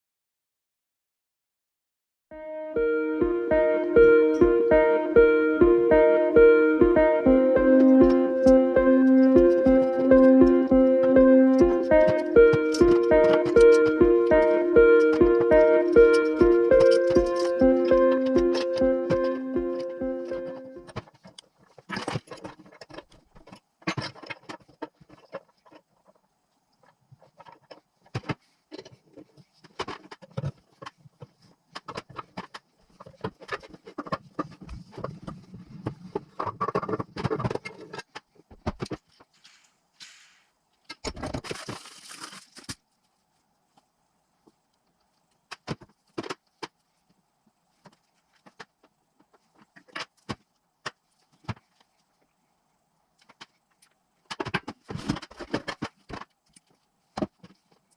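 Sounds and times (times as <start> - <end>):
tools and metal parts clinking: 20.9 - 25.8
short burst of hiss: 39.4 - 40.5.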